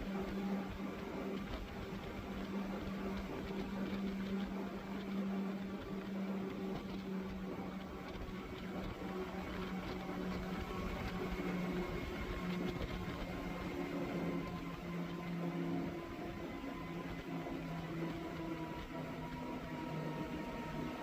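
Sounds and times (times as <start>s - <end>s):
boat engines droning: 0.0s - 21.0s.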